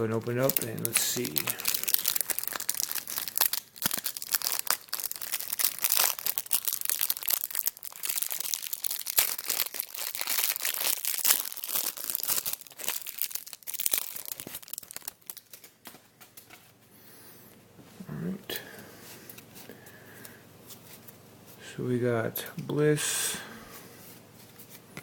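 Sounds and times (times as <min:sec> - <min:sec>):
wrapper tearing and crinkling: 0:00.0 - 0:15.8.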